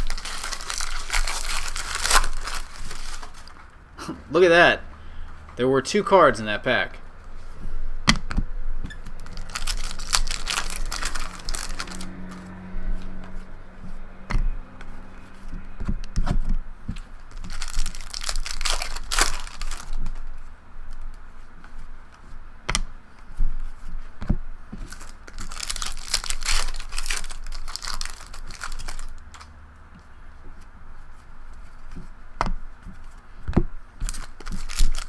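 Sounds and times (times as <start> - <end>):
card pack wrappers tearing and crinkling: 0.0 - 3.7, 9.0 - 12.5, 17.2 - 20.3, 24.8 - 29.5, 34.0 - 35.0.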